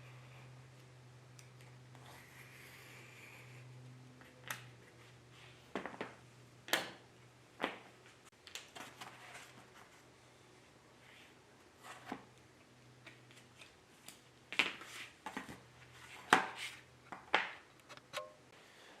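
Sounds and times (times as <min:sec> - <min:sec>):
low steady hum: 0:00.0 - 0:14.5.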